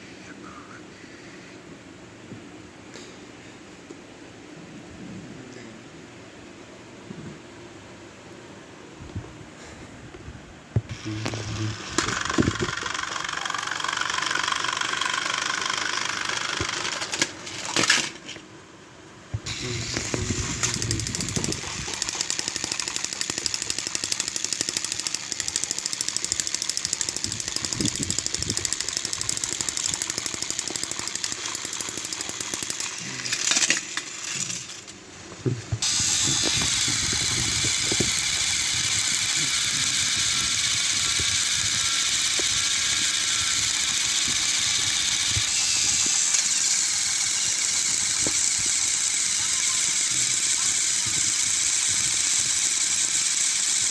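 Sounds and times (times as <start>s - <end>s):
toy train motors whirring: 10.9s - 18.4s, 19.4s - 35.0s, 35.8s - 53.9s.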